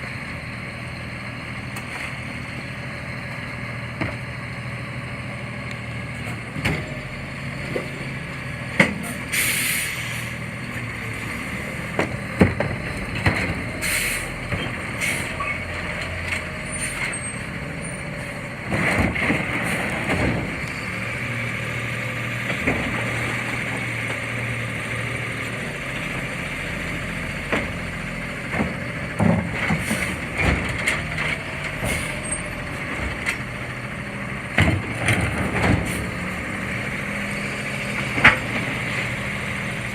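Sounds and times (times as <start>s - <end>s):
truck engine running: 0.0s - 39.9s
air brakes hissing: 9.0s - 10.4s, 13.8s - 14.4s, 31.9s - 32.4s.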